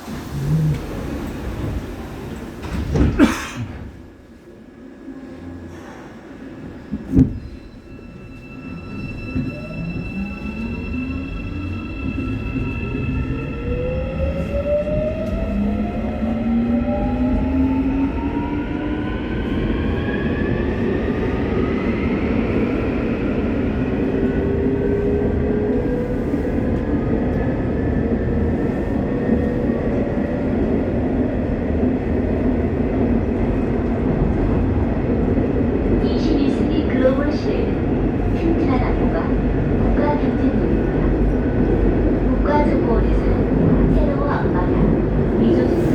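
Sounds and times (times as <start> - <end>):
wheels rumbling on track: 0.0 - 4.1.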